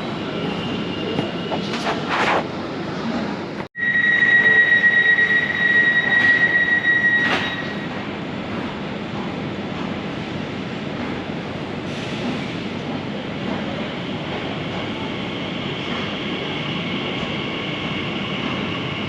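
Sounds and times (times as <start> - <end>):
underground train rumbling: 0.0 - 19.0
high-pitched wheel squeal: 3.8 - 7.9.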